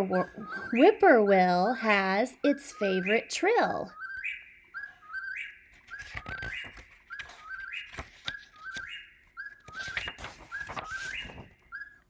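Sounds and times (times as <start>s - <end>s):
whip-poor-will whistled song: 0.2s - 0.8s, 5.9s - 12.0s.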